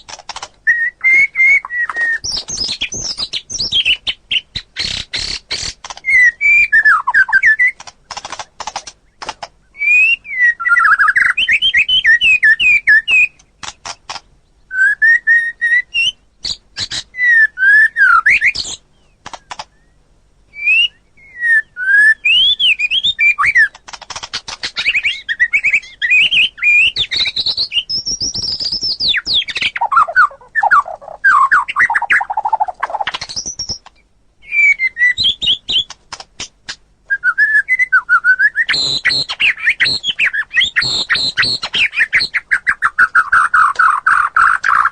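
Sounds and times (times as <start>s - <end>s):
sharp bird clicks: 0.0s - 10.1s, 10.7s - 14.4s, 18.3s - 20.0s, 22.3s - 34.1s, 35.0s - 36.8s, 38.7s - 44.9s
bird singing whistled phrases: 0.6s - 5.4s, 6.0s - 7.8s, 9.7s - 13.4s, 14.7s - 18.8s, 19.7s - 23.8s, 24.8s - 35.9s, 37.1s - 44.9s.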